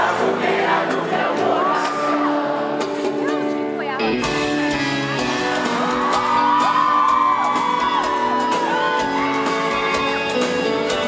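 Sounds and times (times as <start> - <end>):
live band music: 0.0 - 11.0
audience screaming and whooping: 0.3 - 2.7, 4.7 - 11.0.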